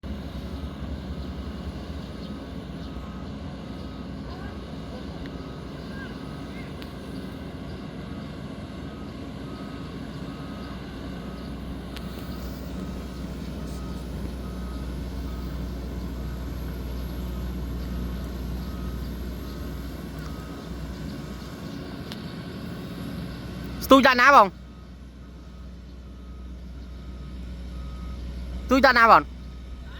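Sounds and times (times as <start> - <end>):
diesel engine rumbling: 0.0 - 29.9
backup alarm beeping: 8.8 - 21.4, 23.8 - 29.8.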